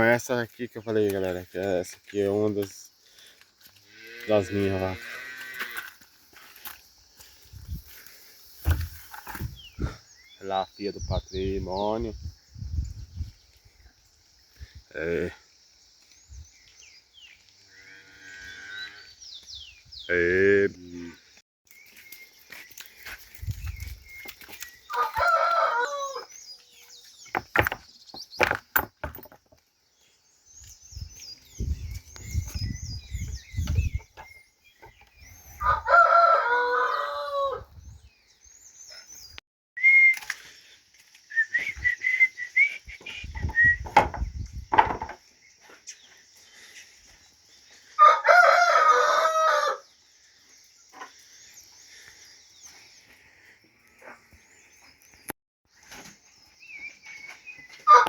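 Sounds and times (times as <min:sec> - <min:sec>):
rooster crowing: 0:24.9 - 0:26.3, 0:35.6 - 0:37.7, 0:48.0 - 0:49.9
faint high bird chirps: 0:30.6 - 0:36.3.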